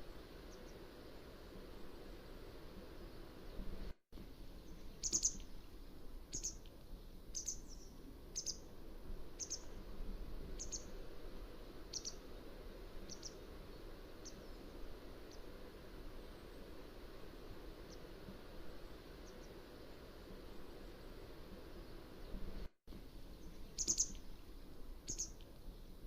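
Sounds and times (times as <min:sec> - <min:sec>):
low background hiss: 0:00.0 - 0:26.0
bird chirping: 0:04.6 - 0:05.5, 0:06.3 - 0:06.7, 0:07.3 - 0:08.7, 0:09.4 - 0:09.8, 0:10.6 - 0:11.0, 0:11.9 - 0:12.2, 0:13.0 - 0:13.4, 0:23.3 - 0:24.3, 0:25.1 - 0:25.4.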